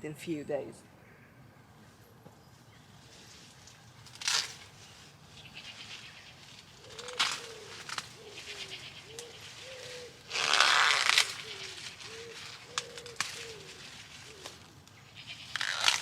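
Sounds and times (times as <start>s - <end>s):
loud rustling: 3.2s - 14.7s
dove cooing: 6.8s - 10.4s, 11.3s - 14.7s.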